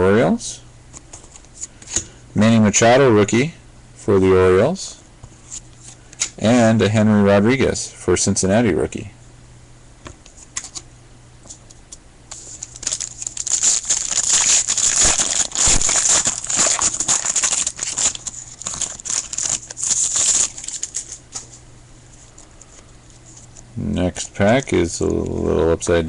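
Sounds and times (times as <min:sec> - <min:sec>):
foil wrapper tearing and crinkling: 0:12.3 - 0:21.6.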